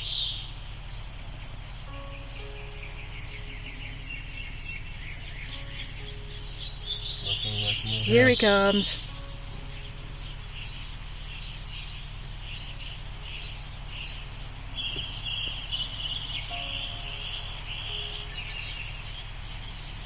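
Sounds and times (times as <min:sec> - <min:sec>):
birds chirping: 0:00.0 - 0:20.0
steady low hum: 0:00.0 - 0:20.0.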